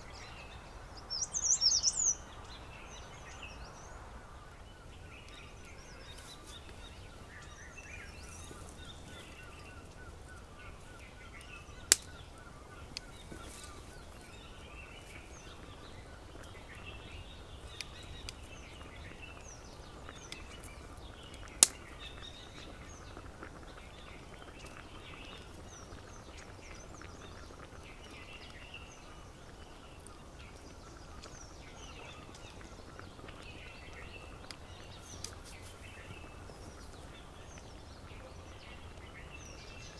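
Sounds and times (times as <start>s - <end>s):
birds chirping and calling: 0.2s - 2.8s
sharp snaps: 11.4s - 12.3s, 20.1s - 22.2s.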